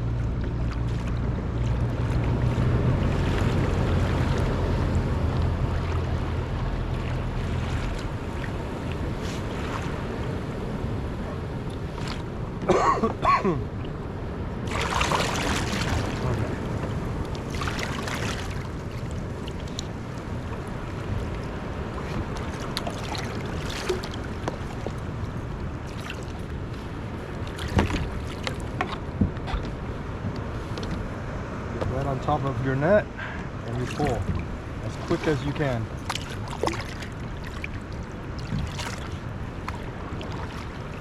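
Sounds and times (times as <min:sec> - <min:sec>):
water lapping: 0:00.0 - 0:13.0, 0:13.6 - 0:31.2, 0:32.0 - 0:41.0
splashing swishes: 0:14.6 - 0:19.8, 0:22.2 - 0:24.8, 0:33.7 - 0:41.0.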